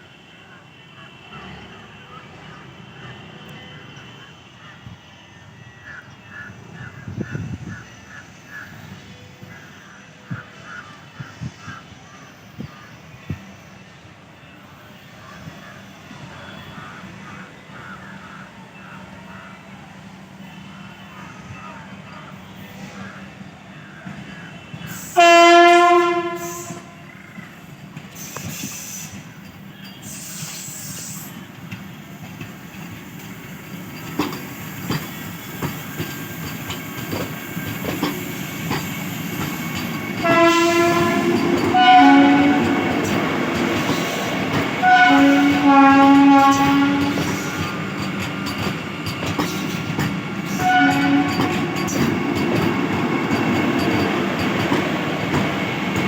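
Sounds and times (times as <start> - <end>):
train wheels rumbling on rails: 6.3 - 56.0
train horn blast: 24.8 - 27.1, 40.2 - 43.3, 44.5 - 47.7, 50.5 - 52.0.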